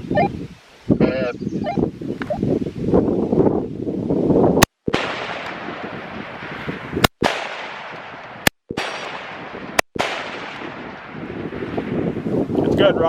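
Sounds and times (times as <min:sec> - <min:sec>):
rifle shots: 0:04.9 - 0:11.3
long echo of gunshots: 0:04.9 - 0:12.2.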